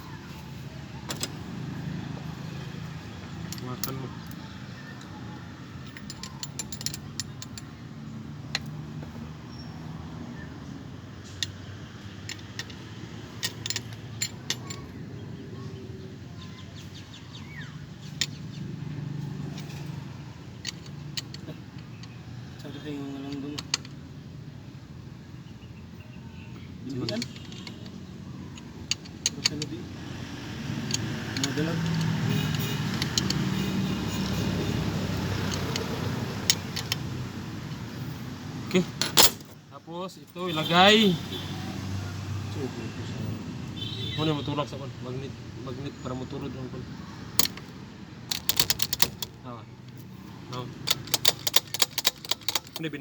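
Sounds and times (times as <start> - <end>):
motor vehicles humming: 0.0 - 53.0
metal tools clinking: 5.7 - 7.8, 11.2 - 15.0, 19.3 - 24.0, 26.8 - 37.9, 38.7 - 39.6, 47.3 - 49.4, 50.0 - 53.0
sharp metallic clicks: 26.9 - 37.9, 38.7 - 39.6, 47.4 - 53.0.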